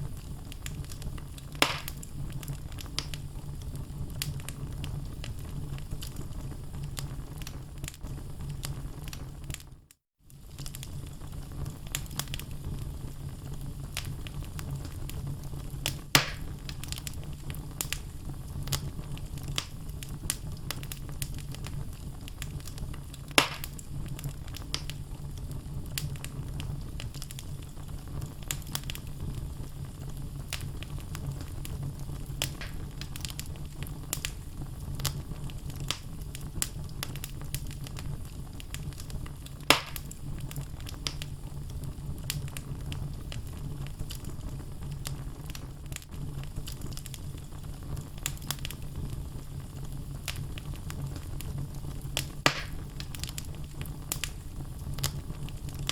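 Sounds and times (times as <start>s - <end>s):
loud sharp fire pops: 0.0s - 9.6s, 13.8s - 25.0s, 28.2s - 44.4s, 50.0s - 55.9s
wood fire crackling: 0.0s - 55.9s.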